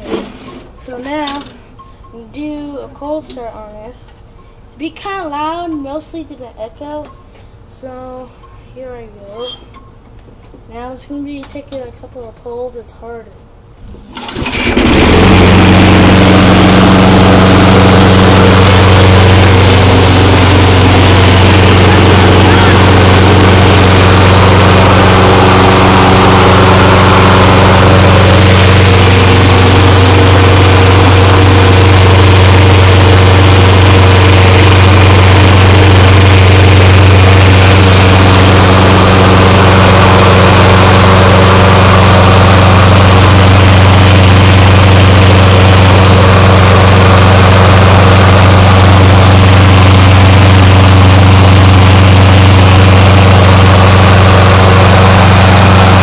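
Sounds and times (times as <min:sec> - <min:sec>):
lawnmower engine running: 0:14.0 - 0:56.0.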